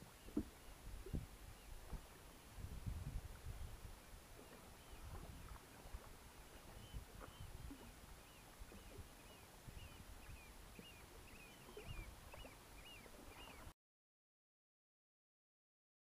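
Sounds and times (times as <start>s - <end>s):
soft knocks of canoe and water: 0.0s - 13.7s
faint bird chirps: 6.6s - 13.7s.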